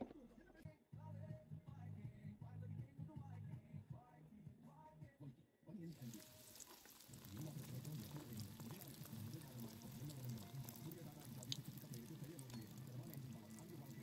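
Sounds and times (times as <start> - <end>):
bread frying in hot oil: 5.9 - 14.0
spatula turning food: 6.0 - 14.0.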